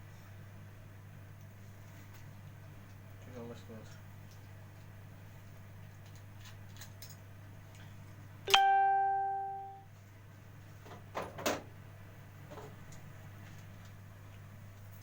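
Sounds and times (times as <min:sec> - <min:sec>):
chime-like ding: 0:08.5 - 0:09.8.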